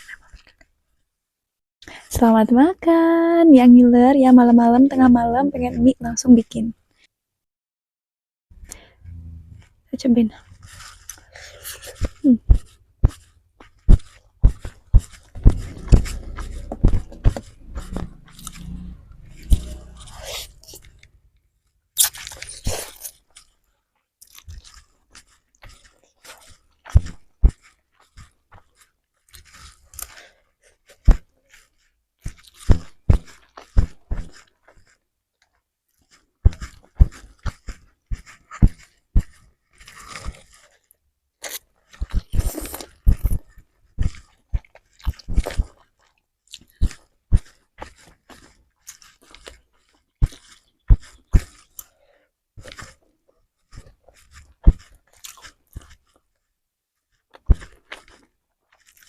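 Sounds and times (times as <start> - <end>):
wet chewing and mouth smacks: 10.7 - 21.2, 22.0 - 23.6, 24.2 - 30.2, 30.8 - 52.0, 53.7 - 56.3, 57.1 - 59.0.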